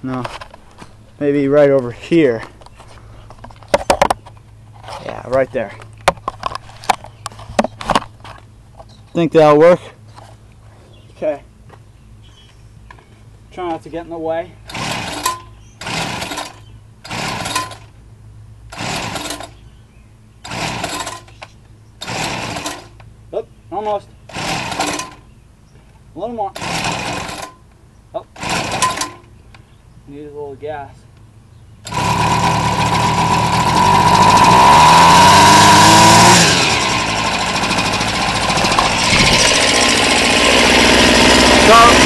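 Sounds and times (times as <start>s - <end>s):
engine turning over: 14.6s - 17.9s, 18.7s - 19.6s, 20.4s - 21.4s, 22.0s - 23.0s, 24.3s - 25.3s, 26.6s - 27.6s, 28.4s - 29.3s, 31.8s - 42.0s
recoil starter rope pulls: 14.7s - 17.9s, 18.7s - 19.6s, 20.4s - 21.4s, 22.0s - 23.0s, 24.3s - 25.3s, 26.6s - 27.6s, 28.4s - 29.3s, 31.8s - 42.0s.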